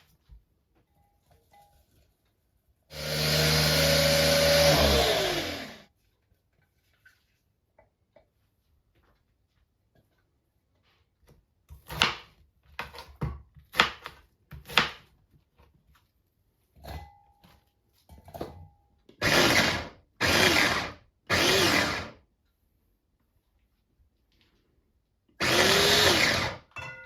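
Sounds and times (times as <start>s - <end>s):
electric blender running: 2.9s - 5.8s, 19.2s - 22.2s, 25.4s - 26.6s.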